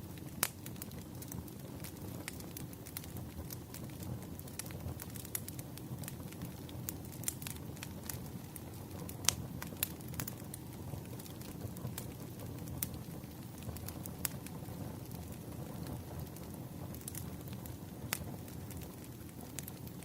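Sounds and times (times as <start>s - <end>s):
fire crackling and popping: 0.0s - 20.0s
low rumble of flames: 0.0s - 20.0s.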